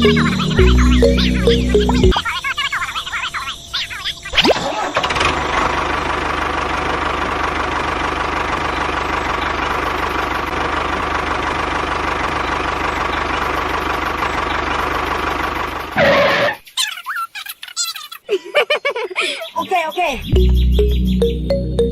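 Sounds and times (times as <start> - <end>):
engine idling with knocking: 5.0 - 16.3.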